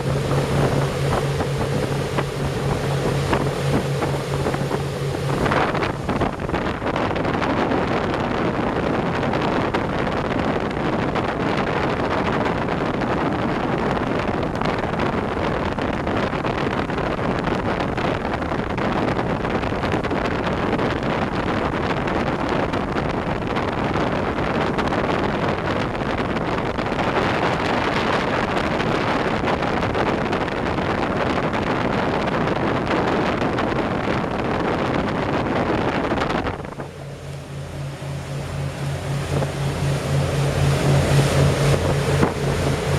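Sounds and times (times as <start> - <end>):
low steady hum: 0.0 - 12.3, 33.0 - 42.9
boat engine: 0.0 - 42.9
water noise: 0.0 - 42.9
wind buffeting microphone: 0.0 - 42.9.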